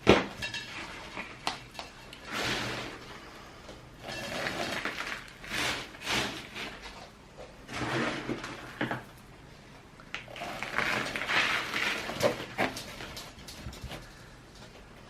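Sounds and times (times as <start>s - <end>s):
potting soil rustling and scraping: 0.7s - 3.4s, 4.0s - 9.0s, 10.2s - 14.2s.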